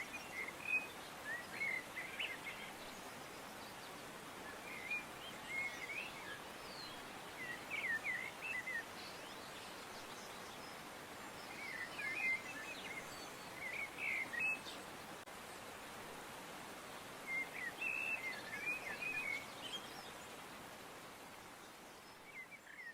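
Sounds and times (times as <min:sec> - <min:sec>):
songbird chirping: 0:00.0 - 0:15.7, 0:16.3 - 0:22.9
steady background hiss: 0:00.0 - 0:22.9.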